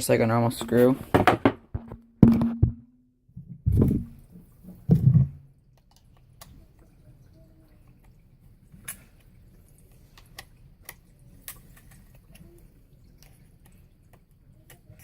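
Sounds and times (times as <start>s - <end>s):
faint handling noise: 0.2s - 2.8s.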